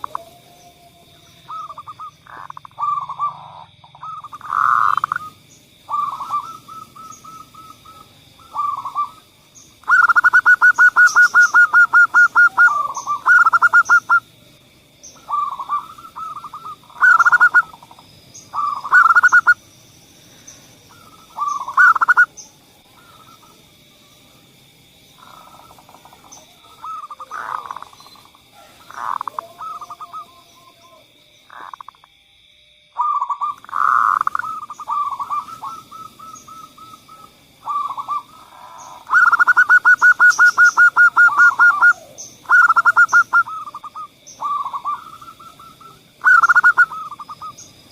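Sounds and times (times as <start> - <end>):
dove cooing: 0.0 - 14.3, 15.2 - 19.6, 20.9 - 23.6, 25.2 - 31.9, 33.0 - 47.7.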